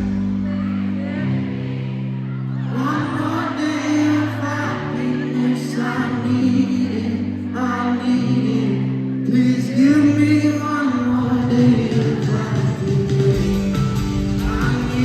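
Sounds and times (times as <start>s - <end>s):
man singing pop ballad: 2.7s - 13.6s, 14.2s - 15.0s.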